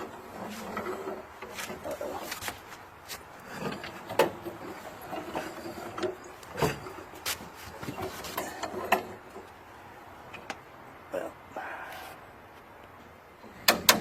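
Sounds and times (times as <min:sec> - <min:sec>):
creaking and rubbing: 0:00.0 - 0:09.6.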